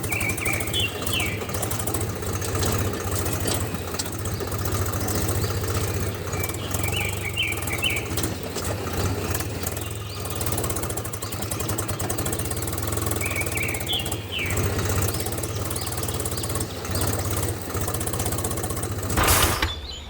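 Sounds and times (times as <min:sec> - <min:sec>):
small engine chugging: 0:00.0 - 0:20.0
faint bird chirps: 0:13.0 - 0:17.5, 0:19.5 - 0:20.0.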